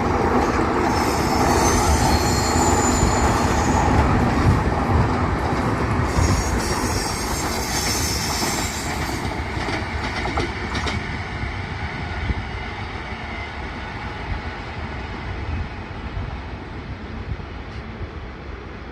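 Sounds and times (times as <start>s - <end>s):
train wheels clattering on rails: 0.0s - 11.8s.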